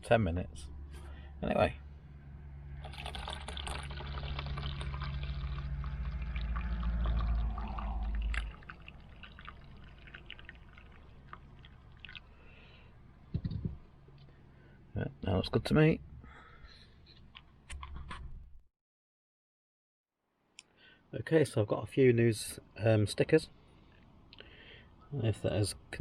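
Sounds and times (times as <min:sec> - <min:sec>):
coffee pouring into mug: 0:02.8 - 0:12.4.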